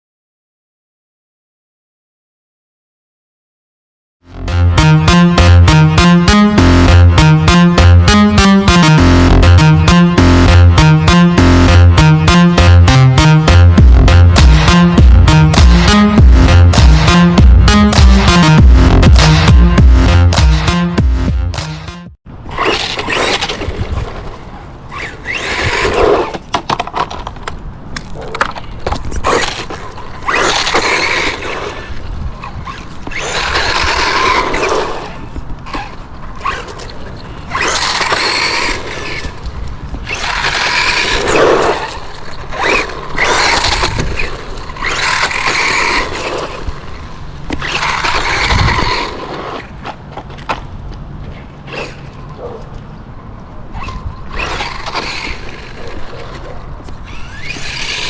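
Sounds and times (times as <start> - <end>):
rc truck motor driving: 22.5 - 26.4, 29.3 - 49.7, 53.8 - 58.0.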